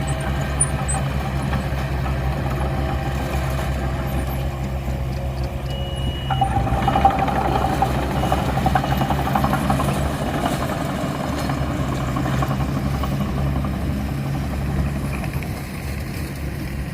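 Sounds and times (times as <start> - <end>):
diesel engine running: 0.0 - 16.9
high squeal: 5.6 - 9.9.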